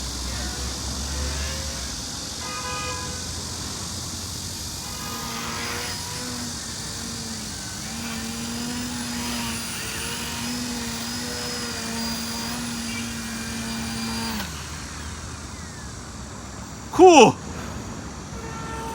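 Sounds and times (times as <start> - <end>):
electric motor and propeller humming: 3.2 - 16.8.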